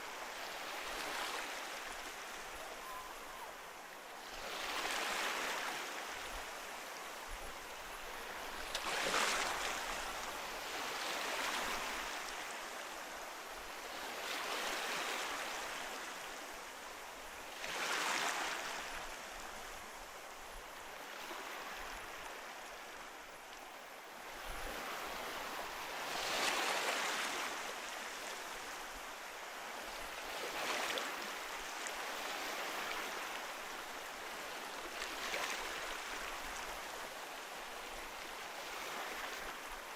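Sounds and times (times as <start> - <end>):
ocean waves crashing on shore: 17.4 - 20.4, 24.2 - 39.9.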